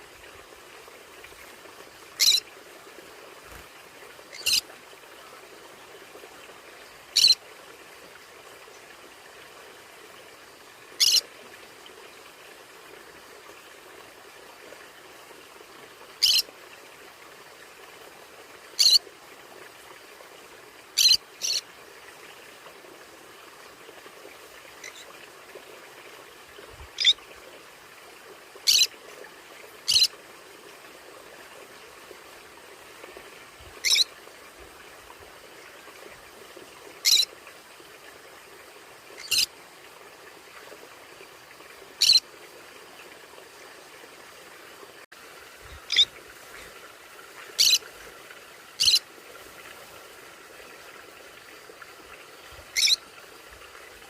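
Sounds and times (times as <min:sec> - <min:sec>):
parrot squawking: 0:02.2 - 0:02.4, 0:11.0 - 0:11.2, 0:33.8 - 0:34.0, 0:45.9 - 0:46.1, 0:47.6 - 0:47.8, 0:48.8 - 0:49.0, 0:52.8 - 0:53.0.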